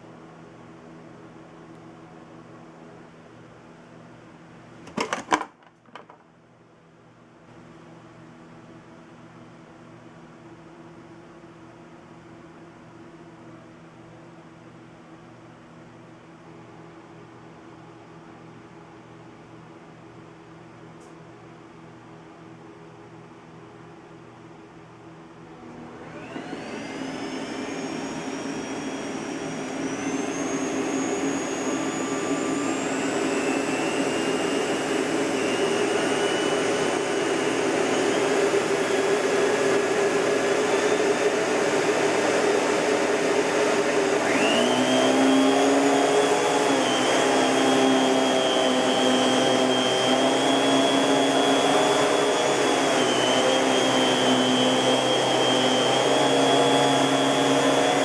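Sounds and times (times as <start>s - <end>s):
vacuum cleaner motor whine: 25.6s - 58.0s.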